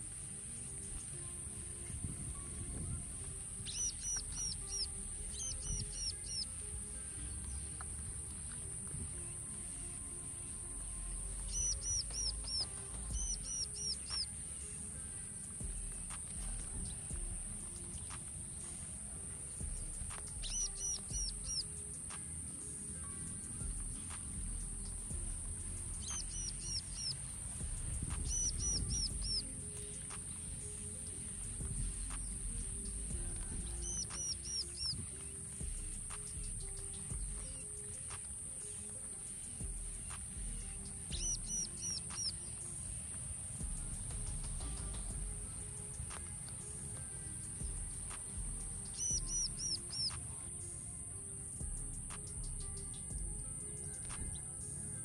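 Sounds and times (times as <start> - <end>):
high-pitched hiss: 0.0 - 55.0
high-pitched insect drone: 0.0 - 55.0
bird whistled notes: 2.9 - 6.7, 10.8 - 14.8, 19.6 - 22.2, 22.9 - 46.8, 47.6 - 50.6.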